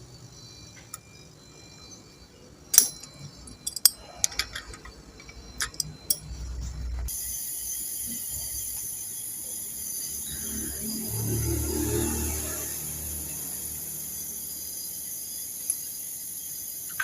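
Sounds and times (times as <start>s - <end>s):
metallic clicks of tools and fittings: 2.7s - 6.8s.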